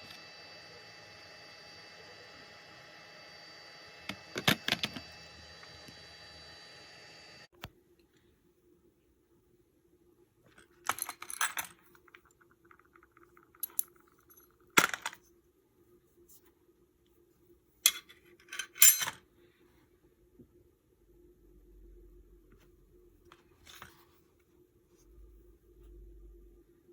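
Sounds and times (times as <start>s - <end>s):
faint buzz: 0.0s - 7.6s
metal tools clinking and clattering: 17.9s - 19.2s.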